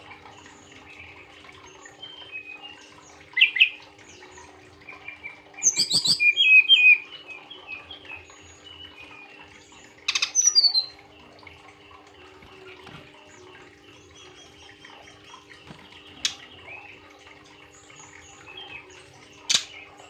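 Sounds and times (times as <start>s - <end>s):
faint bird chirps: 2.0s - 11.2s.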